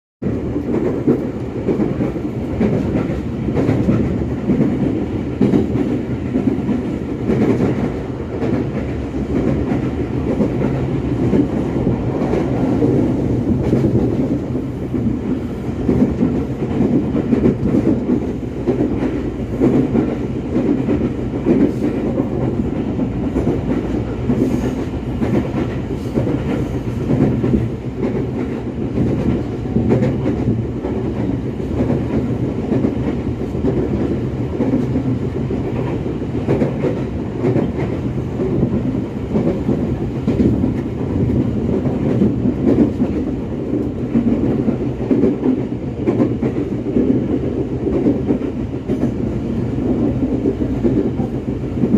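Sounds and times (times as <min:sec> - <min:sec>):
train wheels rumbling on track: 0:00.2 - 0:51.9.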